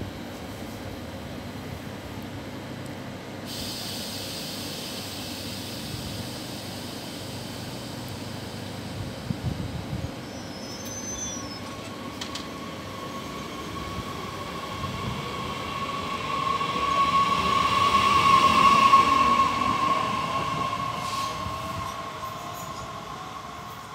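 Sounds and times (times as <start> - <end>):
train running noise: 0.0 - 23.9
high-pitched wheel squeal: 10.2 - 11.8.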